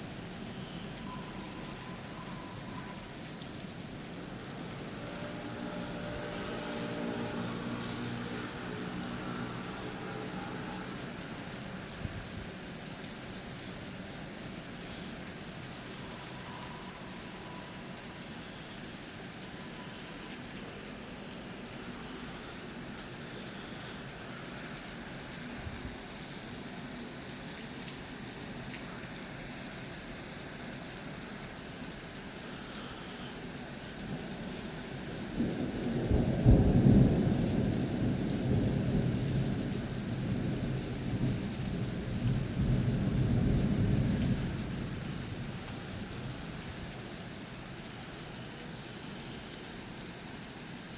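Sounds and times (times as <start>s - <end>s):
rain falling: 0.0s - 50.9s
rolling thunder rumbling: 35.1s - 46.9s.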